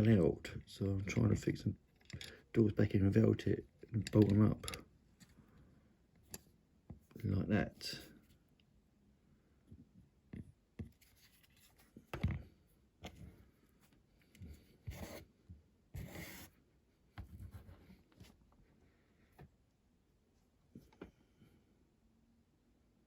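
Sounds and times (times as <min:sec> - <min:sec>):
light clicks and taps: 0:03.8 - 0:05.3.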